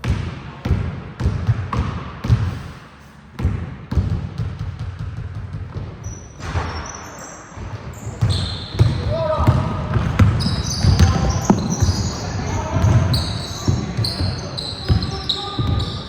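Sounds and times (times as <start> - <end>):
basketball bouncing on gym floor: 0.0 - 2.7, 3.3 - 16.0.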